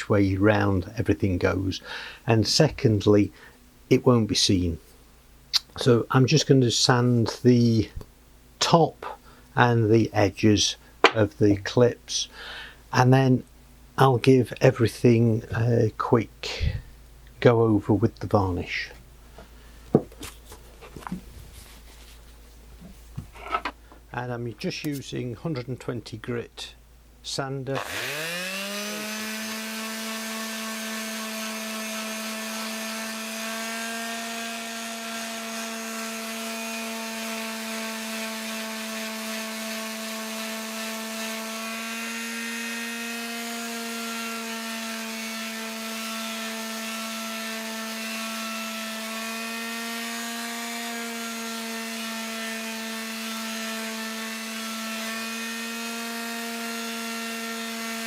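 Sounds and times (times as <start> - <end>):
electric sander motor hum: 27.8 - 58.0.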